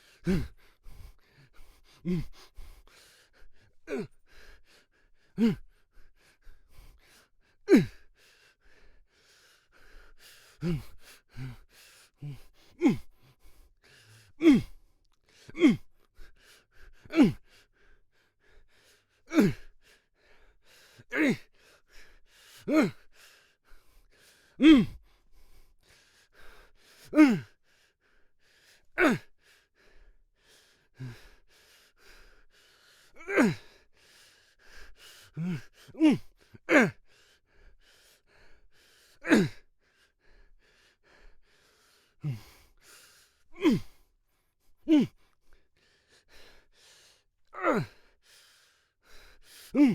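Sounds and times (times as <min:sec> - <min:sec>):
man grunting and crying out: 0:14.4 - 0:14.7, 0:24.6 - 0:24.9, 0:27.2 - 0:27.4, 0:29.0 - 0:29.2, 0:33.2 - 0:33.7, 0:35.4 - 0:37.0, 0:39.2 - 0:39.6, 0:43.6 - 0:43.9, 0:44.9 - 0:45.1, 0:47.6 - 0:48.0.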